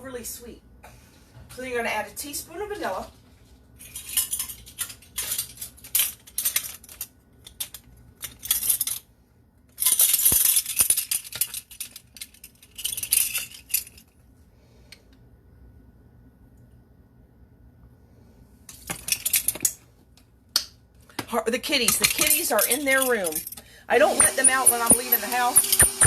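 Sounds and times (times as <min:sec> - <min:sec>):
metal utensils clinking: 0:21.8 - 0:26.0.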